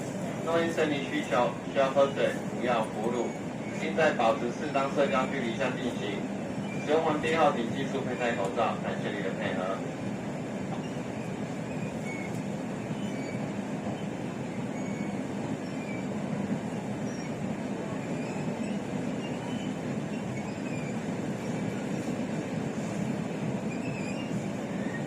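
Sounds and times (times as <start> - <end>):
train wheels rolling on rails: 0.0 - 25.0
faint high squeaks: 10.7 - 16.1, 17.0 - 21.9, 23.6 - 25.0.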